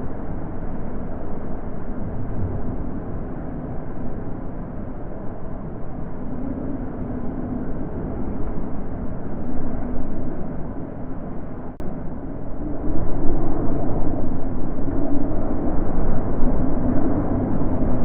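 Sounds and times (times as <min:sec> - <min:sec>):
wind blowing: 0:06.2 - 0:18.0.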